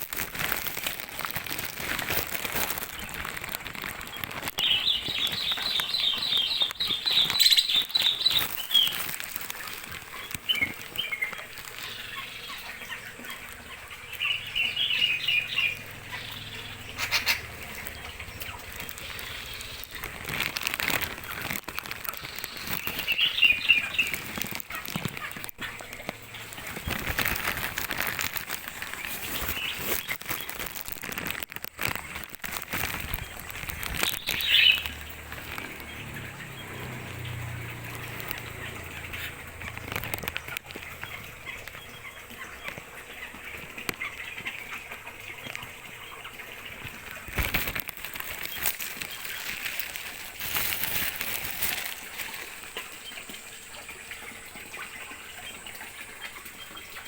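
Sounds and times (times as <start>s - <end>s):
birds flapping wings: 0.0s - 53.7s
clicks and rustles: 0.0s - 53.7s
bird call: 4.5s - 9.1s, 10.1s - 20.0s, 34.0s - 36.5s.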